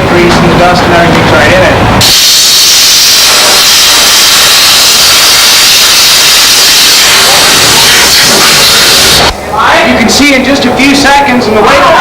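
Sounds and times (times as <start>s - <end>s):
steam cleaner jet hissing: 2.0s - 9.3s.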